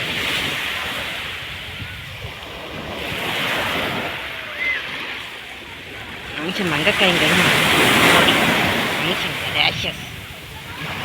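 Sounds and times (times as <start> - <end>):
sea waves washing onto beach: 0.0 - 11.0.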